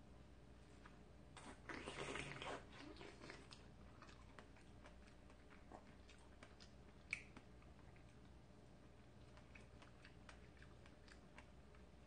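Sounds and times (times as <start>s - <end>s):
faint chewing: 0.6s - 12.0s.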